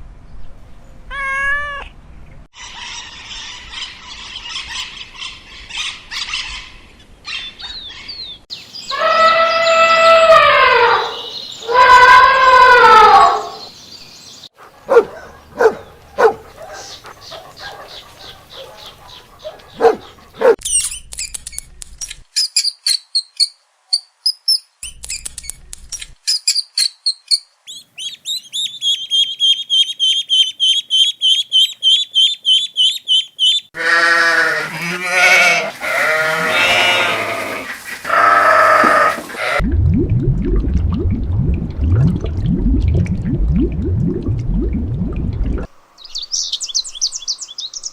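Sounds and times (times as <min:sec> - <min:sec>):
animal long pitched cries: 0:08.9 - 0:13.6, 0:33.8 - 0:39.6
animal clicks and calls: 0:15.8 - 0:23.5, 0:24.8 - 0:27.4
high chirping: 0:26.3 - 0:33.7.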